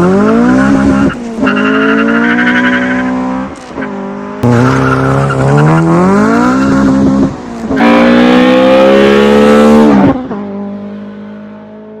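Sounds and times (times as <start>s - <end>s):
car engine revving hard: 4.4s - 10.3s.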